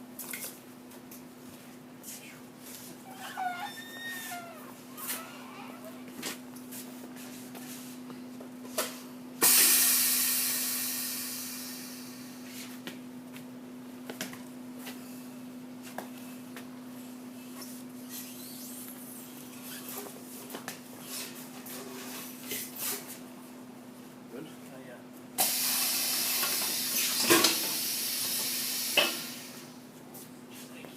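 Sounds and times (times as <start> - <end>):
loud hiss of escaping air: 9.4 - 12.3, 25.4 - 29.6.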